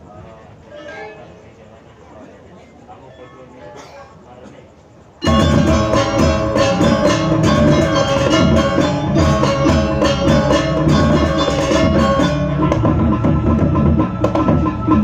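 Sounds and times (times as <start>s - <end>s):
metal percussion strokes: 5.2s - 15.0s
ringing gong tones: 5.2s - 15.0s.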